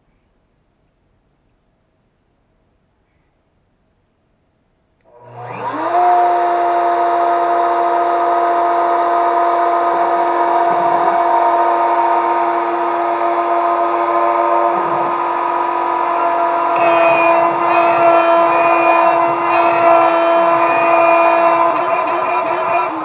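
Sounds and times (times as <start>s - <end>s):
router spindle motor whine: 5.1s - 23.0s.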